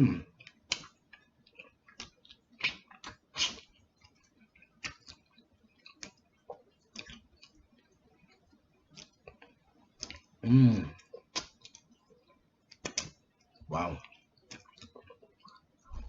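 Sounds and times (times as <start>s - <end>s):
person chewing and lip smacking: 0.1s - 16.0s.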